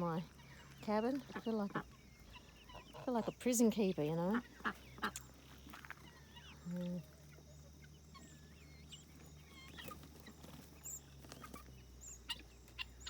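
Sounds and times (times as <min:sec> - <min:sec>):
faint high chirping calls: 0:00.0 - 0:13.0.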